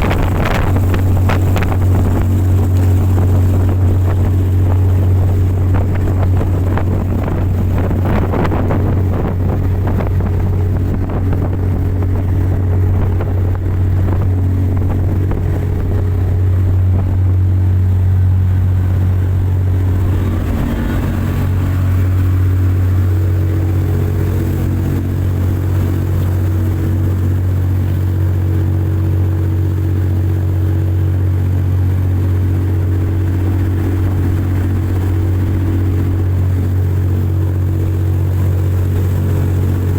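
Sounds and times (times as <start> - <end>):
speedboat engine droning: 0.0 - 39.9
brief rushing sounds: 18.4 - 23.5.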